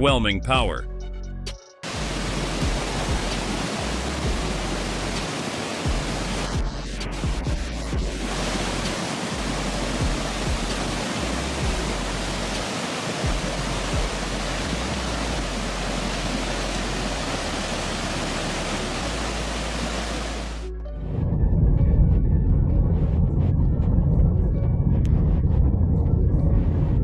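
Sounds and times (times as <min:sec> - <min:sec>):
low music drone: 0:00.0 - 0:05.2, 0:05.8 - 0:12.6, 0:13.2 - 0:27.0
rushing water roar: 0:01.8 - 0:20.7.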